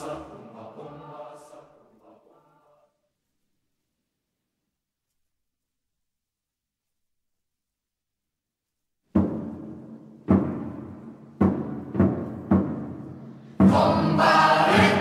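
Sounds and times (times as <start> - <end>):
choir singing: 0.0 - 3.0, 13.6 - 15.0
deep drum strokes ringing: 9.2 - 15.0.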